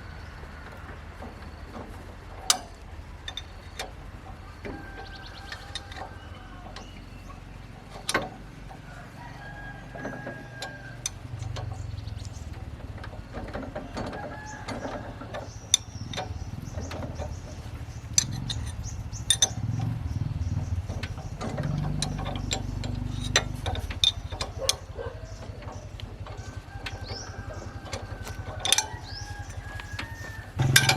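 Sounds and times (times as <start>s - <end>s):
hand tools tapping on metal: 0.6s - 30.9s
rooster crowing: 4.4s - 7.1s, 8.7s - 11.2s, 13.8s - 15.6s, 26.4s - 30.8s
low hum: 28.7s - 30.9s.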